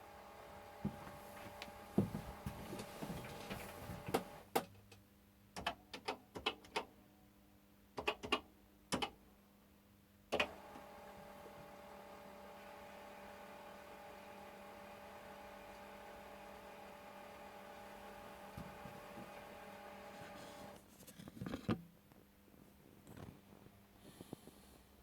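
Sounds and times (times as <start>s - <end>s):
floppy disk drive clicking: 3.2s - 4.4s, 10.4s - 20.8s.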